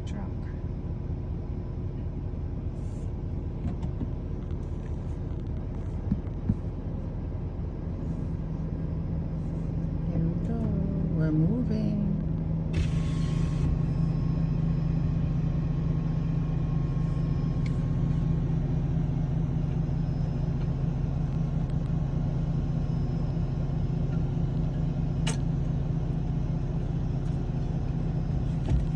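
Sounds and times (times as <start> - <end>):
ferry engine drone: 0.0 - 28.9
sharp click: 25.2 - 25.5.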